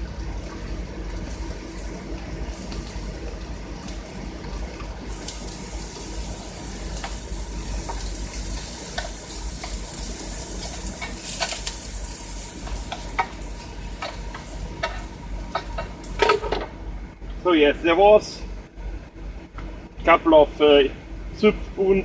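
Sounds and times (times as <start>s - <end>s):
food sizzling in a frying pan: 0.0s - 16.5s.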